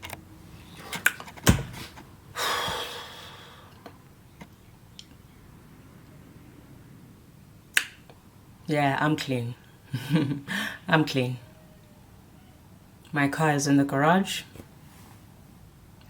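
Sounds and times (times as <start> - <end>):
person sighing: 2.4 - 3.8.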